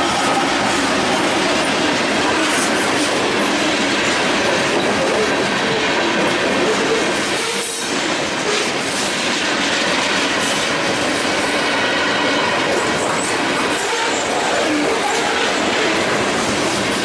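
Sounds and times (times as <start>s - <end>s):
freight train wheels clacking: 0.0s - 17.0s.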